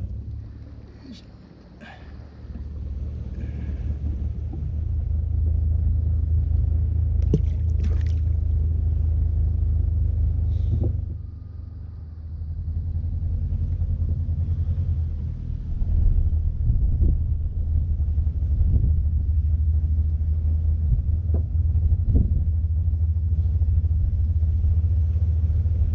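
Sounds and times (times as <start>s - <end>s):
boat engine running: 0.0s - 25.9s.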